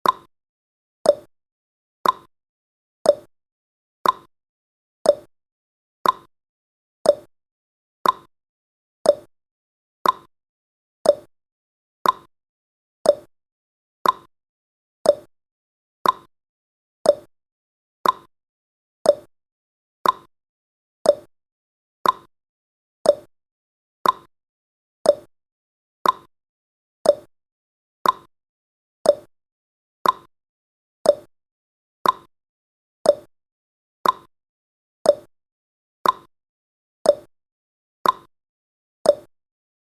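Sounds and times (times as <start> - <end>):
timer ticking: 0.0 - 0.3, 1.1 - 1.3, 2.0 - 2.3, 3.1 - 3.3, 4.0 - 4.3, 5.1 - 5.3, 6.0 - 6.3, 7.0 - 7.3, 8.0 - 8.3, 9.0 - 9.3, 10.0 - 10.3, 11.0 - 11.3, 12.0 - 12.3, 13.0 - 13.3, 14.0 - 14.3, 15.0 - 15.3, 16.0 - 16.3, 17.0 - 17.3, 18.0 - 18.3, 19.0 - 19.3, 20.0 - 20.3, 21.0 - 21.3, 22.0 - 22.3, 23.0 - 23.3, 24.0 - 24.3, 25.0 - 25.3, 26.0 - 26.3, 27.0 - 27.3, 28.0 - 28.3, 29.0 - 29.3, 30.0 - 30.3, 31.0 - 31.3, 32.0 - 32.3, 33.0 - 33.3, 34.0 - 34.3, 35.1 - 35.3, 36.0 - 36.3, 37.1 - 37.3, 38.0 - 38.3, 39.1 - 39.3.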